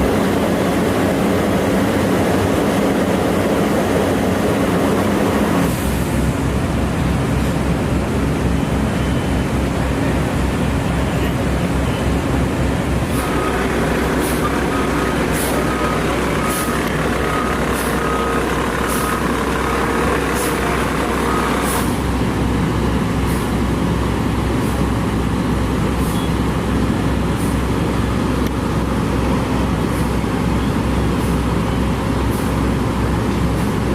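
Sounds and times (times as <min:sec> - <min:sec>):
diesel truck engine running: 0:00.0 - 0:33.9
street traffic: 0:00.0 - 0:33.9
repeated beeping tone: 0:08.6 - 0:09.6, 0:13.1 - 0:21.7.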